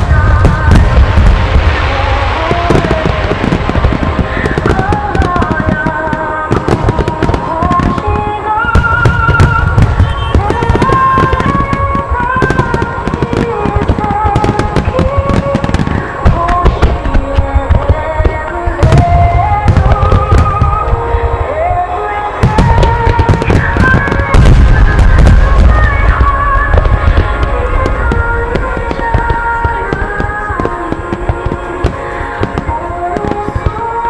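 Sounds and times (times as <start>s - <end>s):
firework shells bursting: 0.0s - 21.0s
melodic music over loudspeakers: 0.0s - 34.0s.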